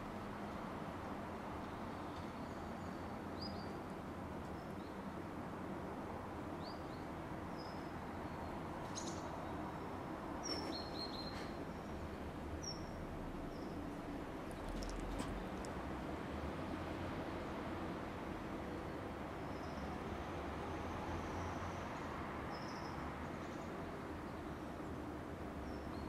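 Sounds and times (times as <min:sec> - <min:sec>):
outdoor background noise: 0:00.0 - 0:26.0
small birds chirping: 0:10.4 - 0:13.8, 0:14.4 - 0:15.7.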